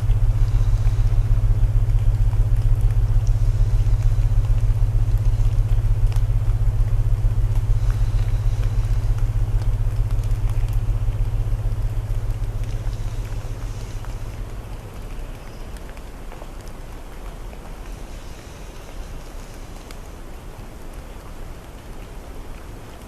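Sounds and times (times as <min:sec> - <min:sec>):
deep binaural tones: 0:00.0 - 0:16.0
burning wood crackles: 0:00.0 - 0:23.0
rain hiss: 0:00.0 - 0:23.0.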